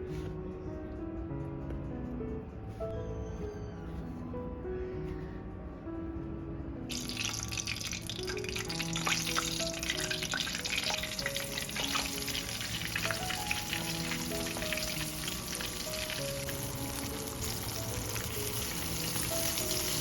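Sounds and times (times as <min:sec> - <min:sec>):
soft background music: 0:00.0 - 0:20.0
food sizzling in a pan: 0:06.9 - 0:20.0.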